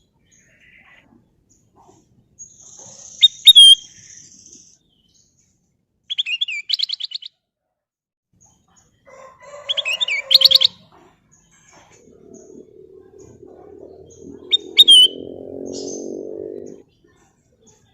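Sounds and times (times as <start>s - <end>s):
bird singing whistled notes: 2.6s - 5.3s, 12.0s - 16.8s.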